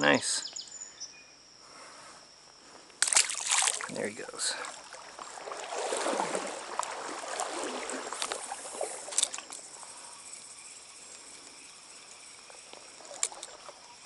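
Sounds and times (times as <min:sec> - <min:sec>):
water splashing and sloshing: 0:03.0 - 0:10.0, 0:11.4 - 0:14.0
stream flowing: 0:03.0 - 0:14.0.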